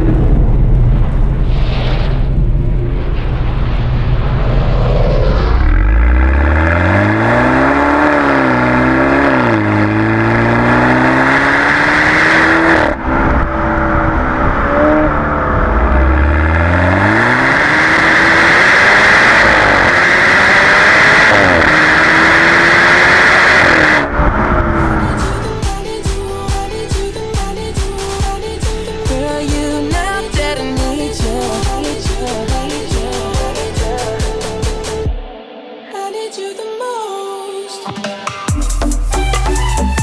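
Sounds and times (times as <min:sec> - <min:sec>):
car engine accelerating: 0:02.2 - 0:35.2.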